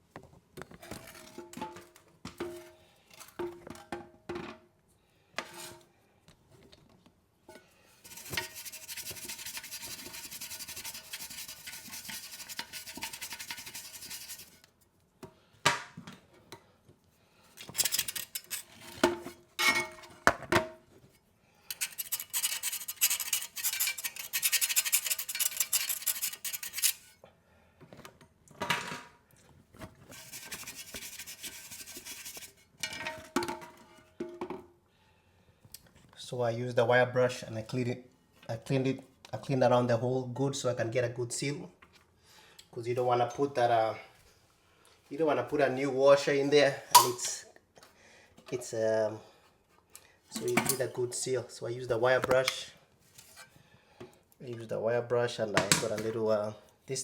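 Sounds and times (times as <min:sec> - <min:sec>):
wire brush scrubbing: 0:08.0 - 0:14.6, 0:17.7 - 0:18.7, 0:21.7 - 0:27.1, 0:30.1 - 0:32.6.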